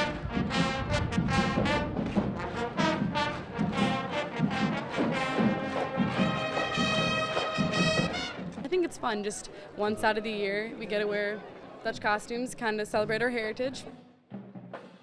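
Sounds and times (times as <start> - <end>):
brass band playing: 0.0 - 8.6.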